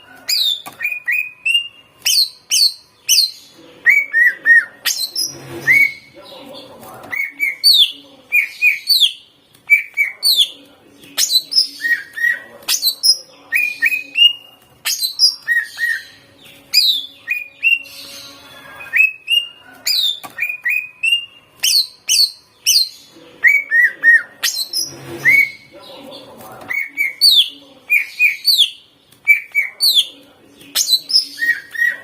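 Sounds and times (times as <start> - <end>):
bird singing whistled notes: 0.3 - 6.1, 11.2 - 25.7.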